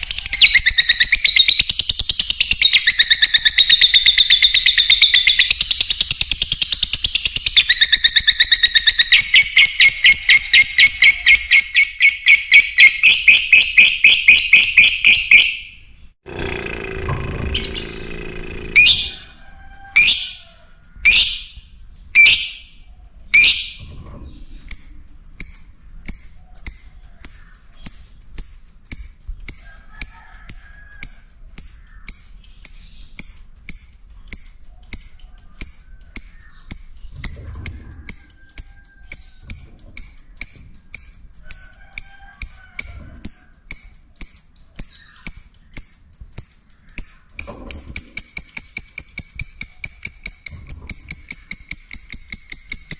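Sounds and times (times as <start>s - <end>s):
bird high-pitched chirps: 0.0s - 15.8s, 18.7s - 41.8s, 42.4s - 52.9s
bird harsh shrieks: 18.6s - 20.5s.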